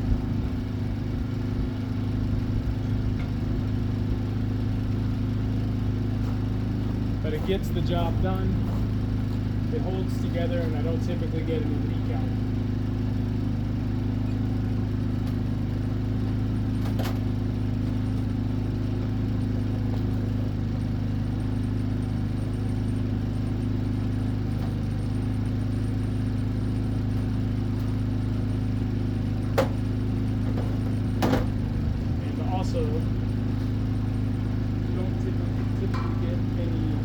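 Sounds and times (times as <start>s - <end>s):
low machine hum: 0.0s - 37.0s.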